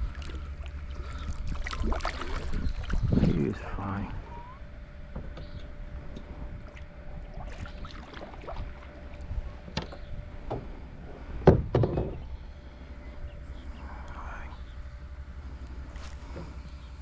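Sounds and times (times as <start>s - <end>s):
low rumble: 0.0s - 17.0s
kayak knocks and bumps: 11.4s - 12.2s.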